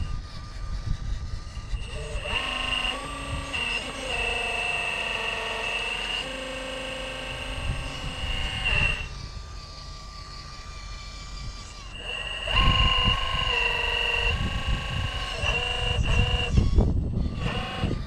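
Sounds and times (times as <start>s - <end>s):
wind rumble on microphone: 0.0s - 4.4s, 7.4s - 9.6s, 12.3s - 18.0s
electric motor whine: 0.0s - 18.0s.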